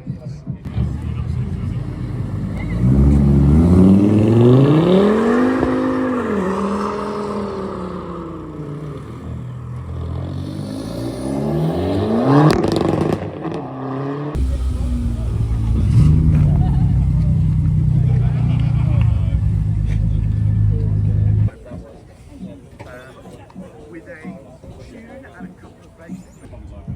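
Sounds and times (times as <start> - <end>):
car engine revving: 0.7 - 21.5.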